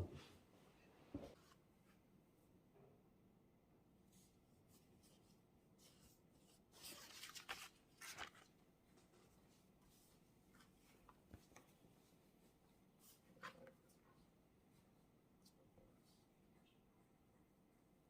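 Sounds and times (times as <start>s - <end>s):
paper rustling: 5.0s - 9.6s.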